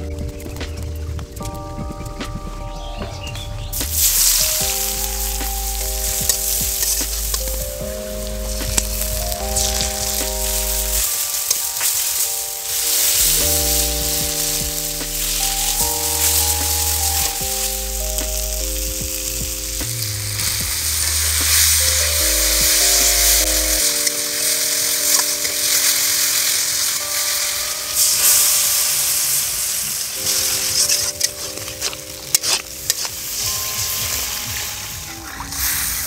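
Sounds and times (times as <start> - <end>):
background music held notes: 0.0 - 36.0
tomatoes sizzling in a wok: 15.1 - 18.6.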